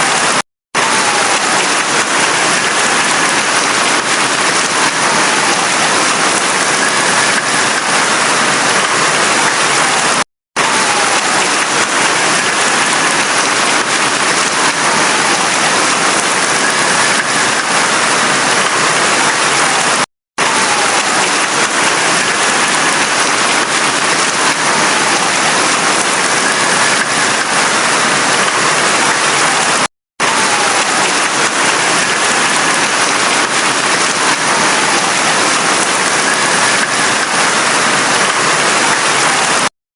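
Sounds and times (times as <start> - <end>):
heavy rain falling: 0.0 - 39.7.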